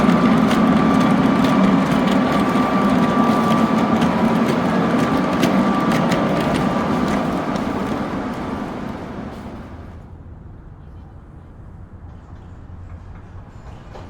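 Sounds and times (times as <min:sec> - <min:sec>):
model train motor hum: 0:00.0 - 0:09.6
wheels clicking over rail joints: 0:00.0 - 0:09.9.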